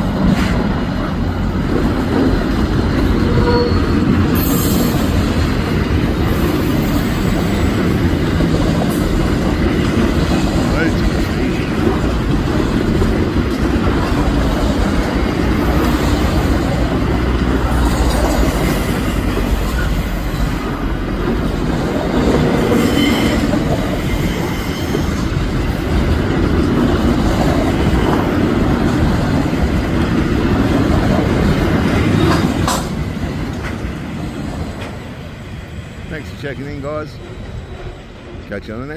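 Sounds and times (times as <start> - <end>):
clickety-clack over rail joints: 0.0 - 38.9
freight train wagons rolling: 0.0 - 38.9
faint wheel squeal: 3.2 - 4.9.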